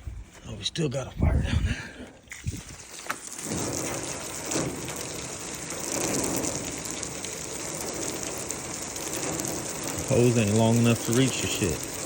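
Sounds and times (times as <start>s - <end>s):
hose water spraying and splattering: 2.2s - 12.0s.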